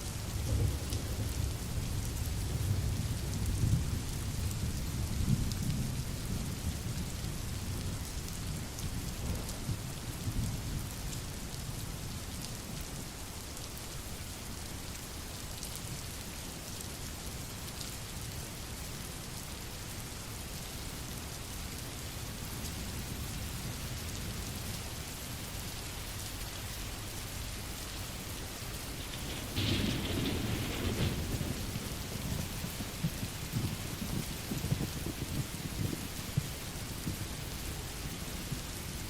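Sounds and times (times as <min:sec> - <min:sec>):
steady rain falling: 0:00.0 - 0:39.0
thunder rumble: 0:00.3 - 0:07.4, 0:28.6 - 0:38.8.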